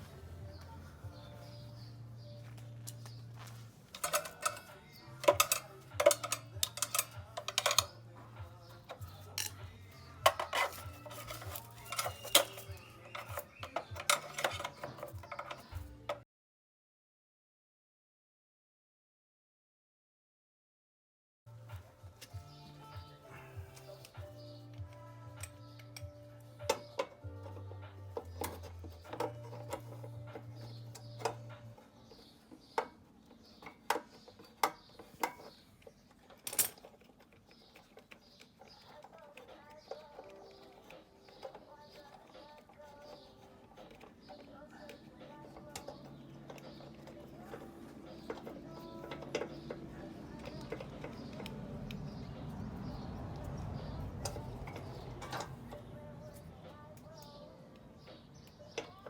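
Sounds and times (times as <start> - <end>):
metallic clinks of hand tools: 3.9 - 8.1, 8.8 - 15.8.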